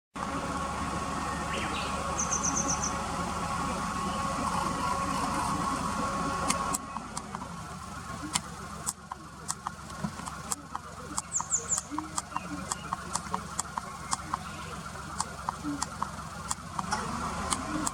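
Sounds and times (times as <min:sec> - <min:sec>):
machine hum with whine: 0:00.2 - 0:17.9
bird high thin calls: 0:01.2 - 0:03.0, 0:11.2 - 0:13.0
sharp ticks: 0:08.2 - 0:17.9.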